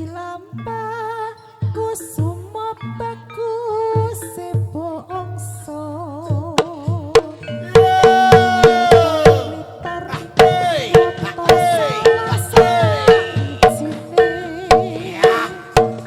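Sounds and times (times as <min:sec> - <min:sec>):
melody with bending notes: 0:00.0 - 0:16.0
hand drum strokes: 0:06.2 - 0:16.0
steady pulsing beat: 0:06.2 - 0:16.0.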